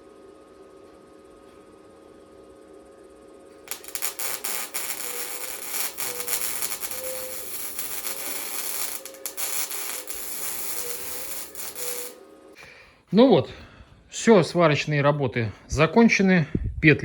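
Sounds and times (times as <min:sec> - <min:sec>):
low hum: 0:02.4 - 0:12.8
welding arc crackling and hissing: 0:03.7 - 0:12.2.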